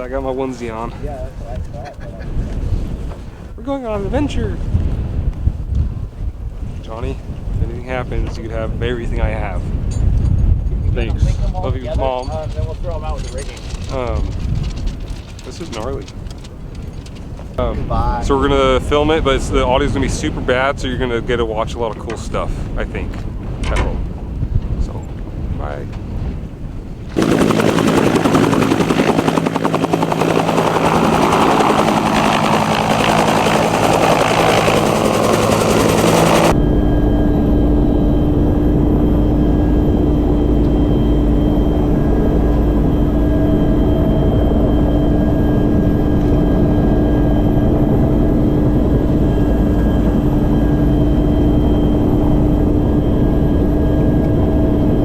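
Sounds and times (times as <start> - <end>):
helicopter rotor and turbine: 0.0 - 55.0
deep steady drone with hum: 34.7 - 55.0.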